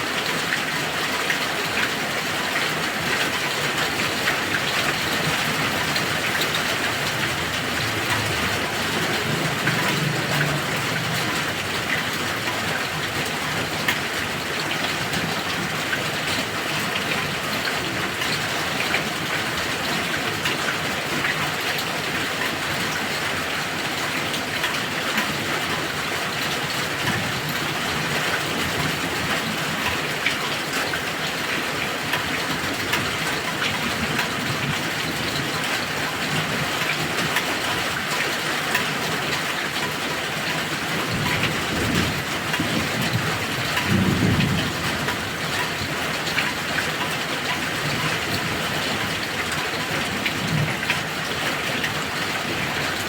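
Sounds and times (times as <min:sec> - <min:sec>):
heavy rain pattering: 0:00.0 - 0:53.0
thunder rumbles: 0:05.0 - 0:12.8, 0:41.0 - 0:46.4.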